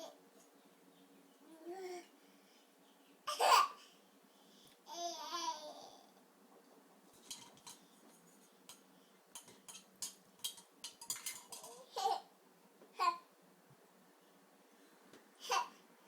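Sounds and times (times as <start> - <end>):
baby babbling: 1.5 - 2.1, 4.9 - 6.1
light clicks and clinks: 7.1 - 11.9.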